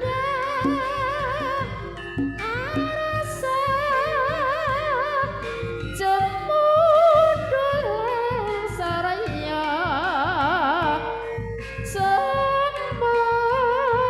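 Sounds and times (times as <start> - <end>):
woman singing with vibrato: 0.0 - 11.3, 11.9 - 14.0
regular drum beat: 0.0 - 13.5.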